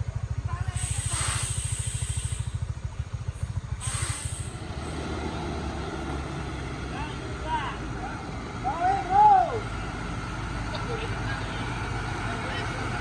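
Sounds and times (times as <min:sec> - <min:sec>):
truck diesel engine labouring: 0:00.0 - 0:13.0
air hisses: 0:00.8 - 0:02.6, 0:03.8 - 0:04.6.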